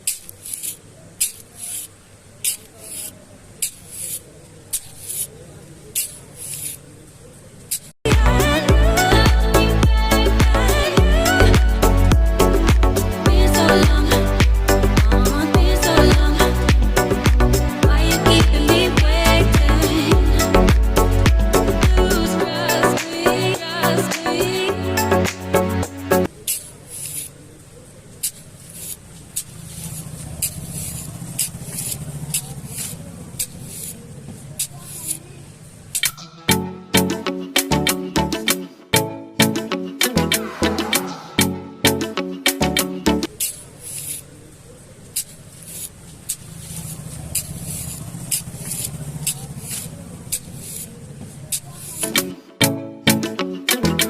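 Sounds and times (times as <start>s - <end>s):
short hissing bursts: 0.0s - 6.8s, 28.2s - 35.2s, 43.4s - 44.4s, 45.1s - 52.1s
small motor buzzing: 28.2s - 35.2s, 45.2s - 52.0s.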